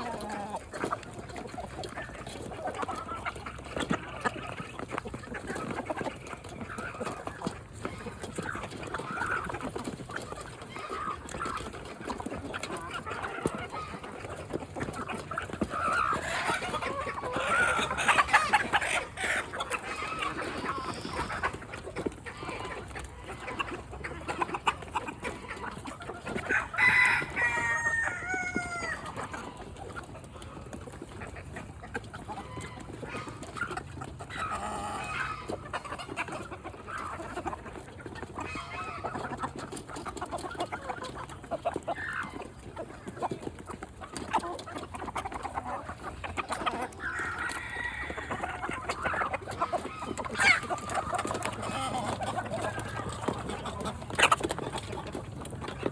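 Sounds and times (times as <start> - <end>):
chickens clucking: 0.0 - 55.9
rooster crowing: 26.5 - 29.0, 47.4 - 48.4.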